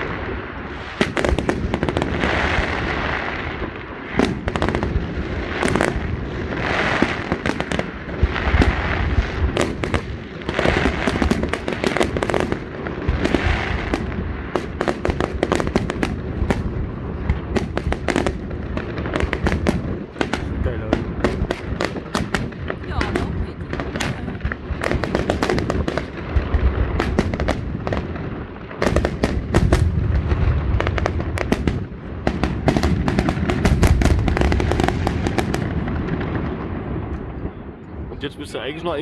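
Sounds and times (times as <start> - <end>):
fireworks bangs and crackling: 0.0 - 39.0
fireworks hissing: 19.2 - 28.1.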